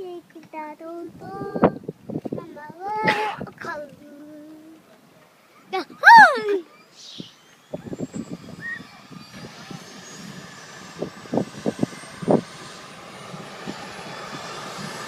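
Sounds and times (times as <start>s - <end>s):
helicopter turbine engine running: 6.4s - 15.0s.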